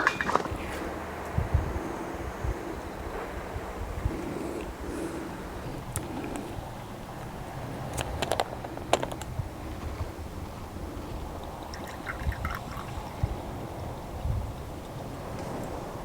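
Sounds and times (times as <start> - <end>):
tableware clicking and clinking: 0.0 - 0.8.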